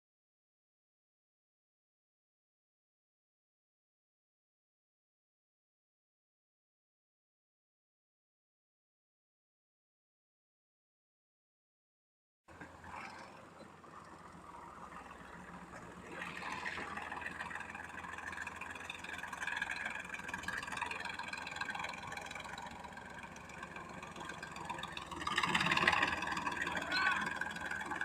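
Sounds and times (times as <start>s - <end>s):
tractor diesel engine running: 12.5s - 28.0s.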